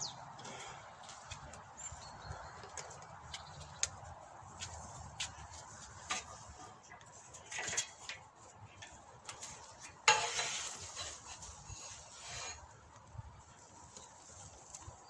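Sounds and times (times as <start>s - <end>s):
loud metallic scrape: 10.0s - 12.6s.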